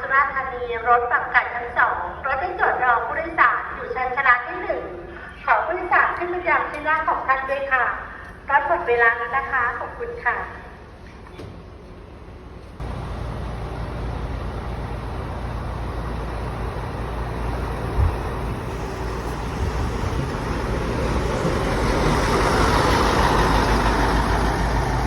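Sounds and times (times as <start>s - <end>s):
bus engine rumbling: 10.8s - 25.0s.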